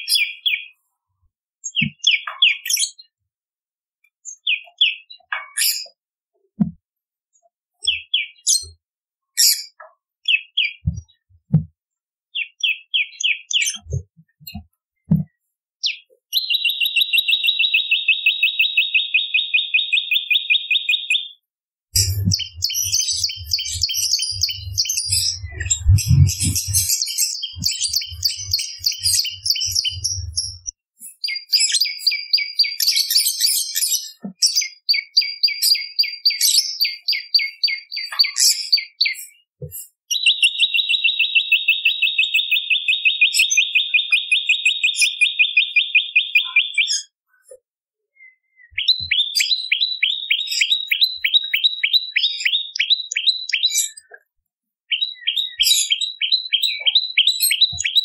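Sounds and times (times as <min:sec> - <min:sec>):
songbird trilling: 0:16.4 - 0:21.3, 0:22.0 - 0:32.9, 0:40.1 - 0:47.1, 0:48.6 - 0:53.9, 0:54.9 - 0:58.0.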